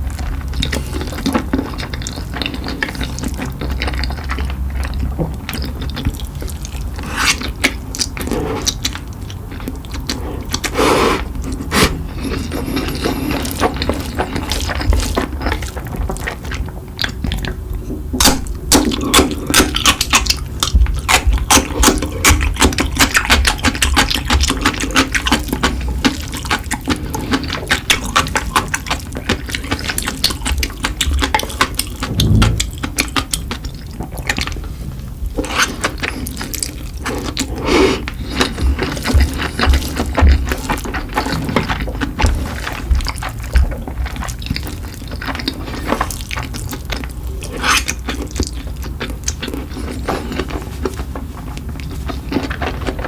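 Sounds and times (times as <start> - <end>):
wet chewing and smacking: 0.0 - 32.4, 33.2 - 53.0.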